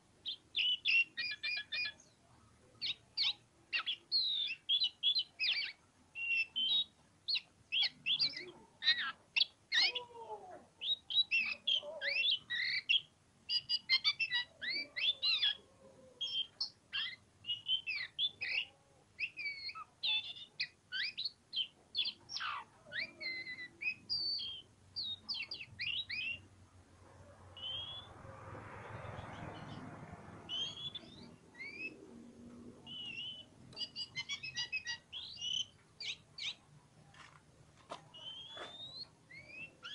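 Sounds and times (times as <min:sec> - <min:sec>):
bird singing whistled phrases: 0:00.3 - 0:02.0, 0:02.8 - 0:10.1, 0:10.8 - 0:15.6, 0:16.2 - 0:26.4, 0:27.6 - 0:28.1, 0:30.5 - 0:32.0, 0:32.9 - 0:36.6, 0:38.1 - 0:39.9
soft rushing noise: 0:26.5 - 0:33.7.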